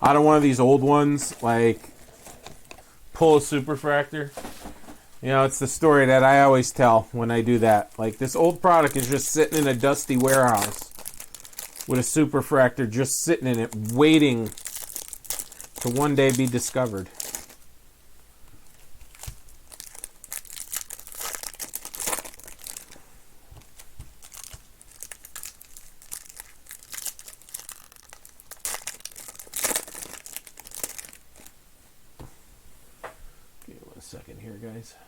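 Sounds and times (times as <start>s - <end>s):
plastic wrapping crinkling and tearing: 6.0s - 17.6s, 18.6s - 23.0s, 23.6s - 31.6s.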